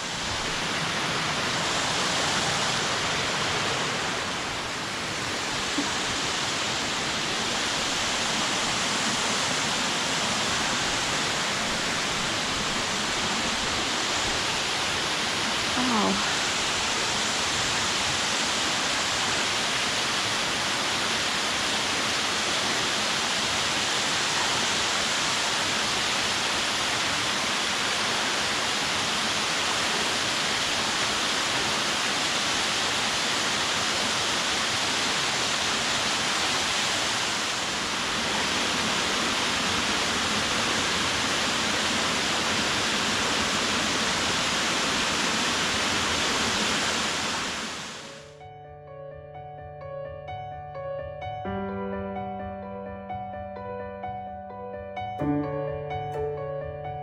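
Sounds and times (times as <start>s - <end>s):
waterfall rushing: 0.0s - 48.3s.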